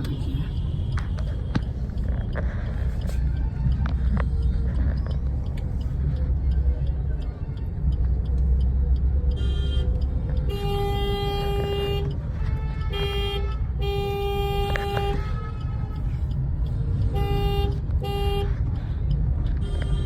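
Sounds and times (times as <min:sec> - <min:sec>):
car engine and road noise: 0:00.0 - 0:20.0
car horn: 0:09.4 - 0:09.9, 0:10.5 - 0:15.9, 0:17.1 - 0:18.6.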